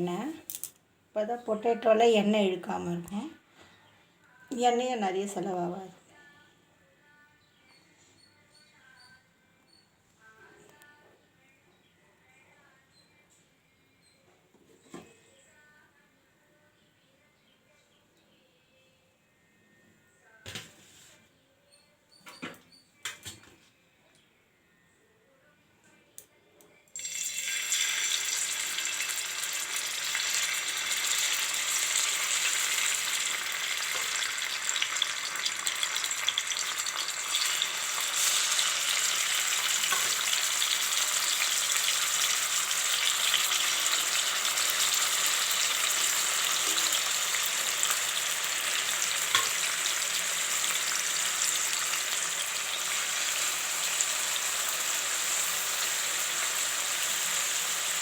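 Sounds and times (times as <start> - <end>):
potatoes sizzling in hot oil: 27.0 - 58.0.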